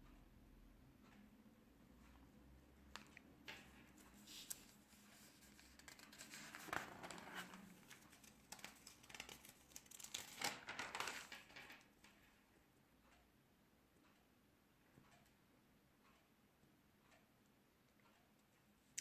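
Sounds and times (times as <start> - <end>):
faint rustling and crinkling: 2.9 - 12.4.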